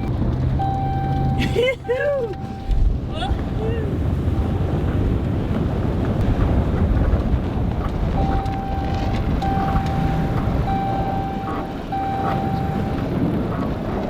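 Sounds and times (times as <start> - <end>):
repeating steady tone: 0.0 - 2.8, 8.2 - 13.1
low vehicle rumble: 0.0 - 14.0.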